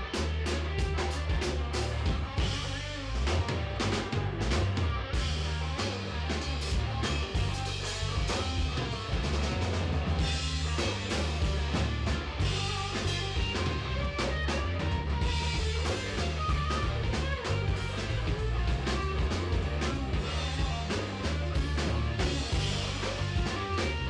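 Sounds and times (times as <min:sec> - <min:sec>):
bass guitar: 0:00.0 - 0:24.0
drum kit beat: 0:00.0 - 0:24.0
electric guitar: 0:00.0 - 0:24.0.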